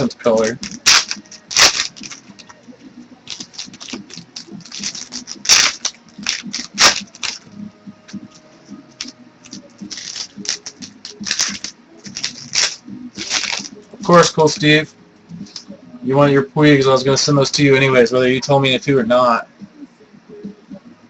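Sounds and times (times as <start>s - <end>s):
trading cards flicking and scraping: 0.0s - 14.7s, 15.4s - 15.8s.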